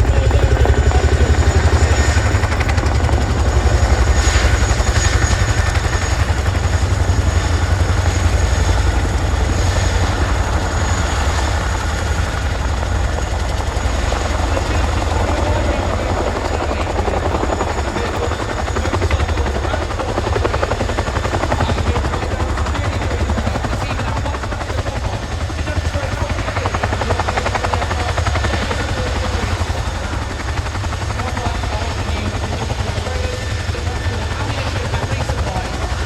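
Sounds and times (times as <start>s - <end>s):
helicopter rotor beat: 0.0s - 36.0s.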